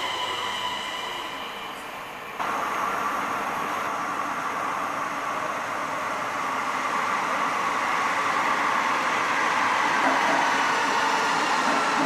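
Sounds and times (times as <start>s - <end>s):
train approaching in tunnel: 0.0s - 12.0s
station hiss and rumble: 2.4s - 5.8s.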